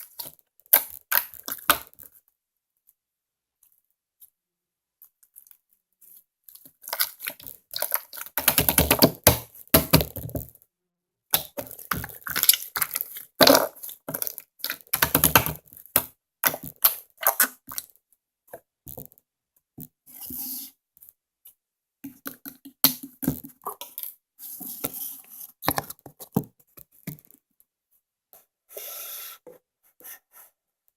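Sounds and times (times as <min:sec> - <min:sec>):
hands squishing slime: 0:06.6 - 0:10.2, 0:11.4 - 0:17.9.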